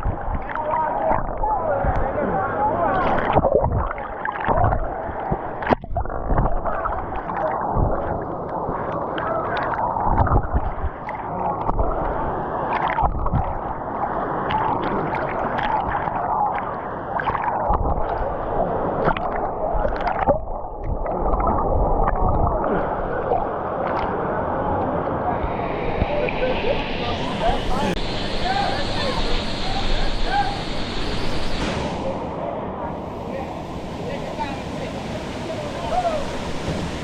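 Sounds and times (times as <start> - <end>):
river water sloshing and gurgling: 0.0 - 26.5, 31.5 - 37.0
swimmer splashing: 20.9 - 37.0.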